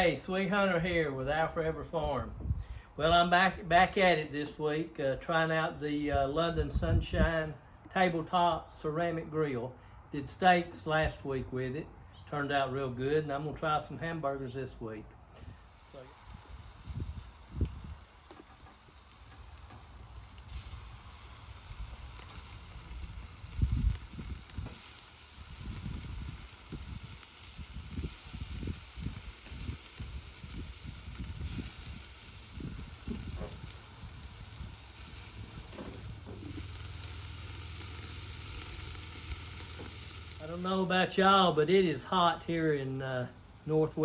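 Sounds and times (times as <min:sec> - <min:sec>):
patties sizzling on a grill: 0:15.2 - 0:44.0.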